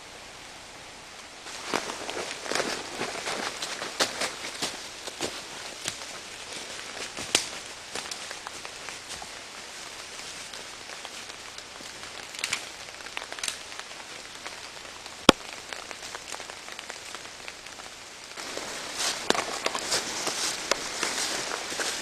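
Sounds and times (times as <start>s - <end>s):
rain and wet snow falling: 0.0s - 22.0s
footsteps: 1.4s - 14.6s, 18.4s - 22.0s.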